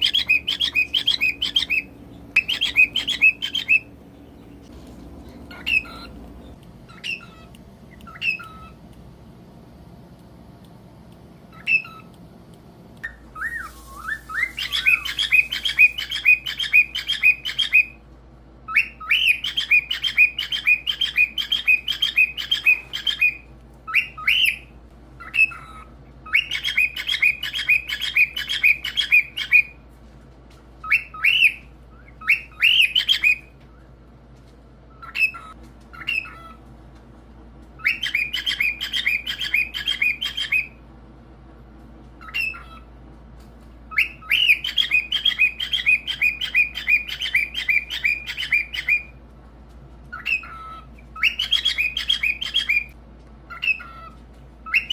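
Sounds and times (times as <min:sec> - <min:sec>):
cockatiel whistling: 0:00.0 - 0:03.9, 0:05.3 - 0:08.8, 0:11.5 - 0:12.1, 0:13.0 - 0:18.0, 0:18.7 - 0:29.8, 0:30.8 - 0:33.9, 0:34.9 - 0:36.6, 0:37.8 - 0:40.8, 0:42.2 - 0:42.9, 0:43.9 - 0:49.2, 0:50.1 - 0:52.9, 0:53.5 - 0:54.9.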